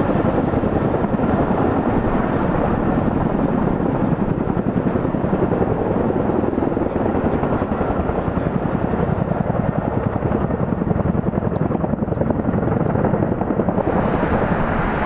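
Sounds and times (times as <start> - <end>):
helicopter rotors beating: 0.0 - 15.0
turbine engines: 11.5 - 15.0.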